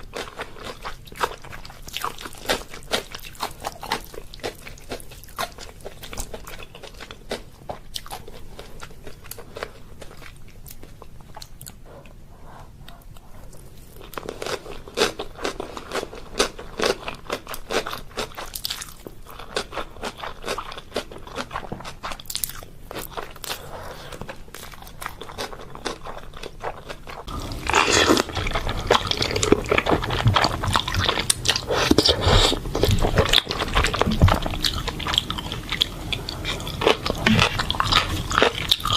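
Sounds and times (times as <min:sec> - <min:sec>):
person chewing and biting: 0:12.8 - 0:38.9.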